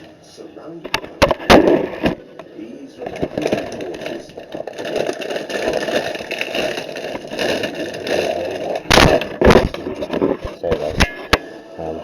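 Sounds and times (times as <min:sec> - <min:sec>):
cereal rattling and crunching: 0:03.0 - 0:10.8.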